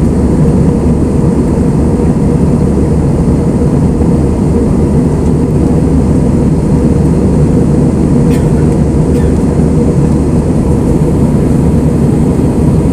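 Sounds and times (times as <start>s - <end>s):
airplane cabin engine rumble: 0.0s - 12.9s.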